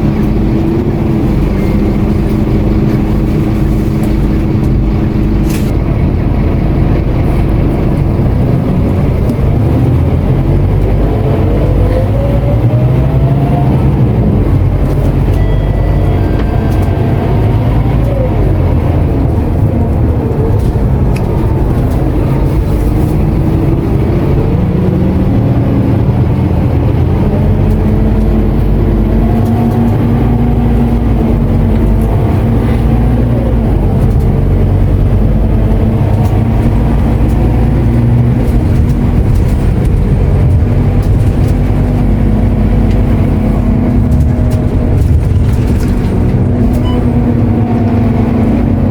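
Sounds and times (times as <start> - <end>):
bus diesel engine accelerating: 0.0 - 48.9.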